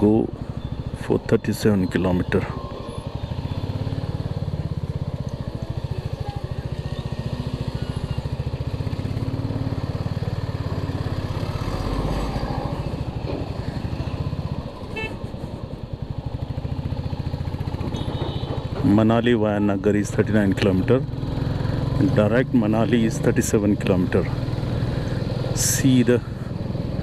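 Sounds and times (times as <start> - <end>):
motorcycle engine running: 0.0 - 12.1, 12.7 - 27.0
short horn beep: 14.9 - 15.2.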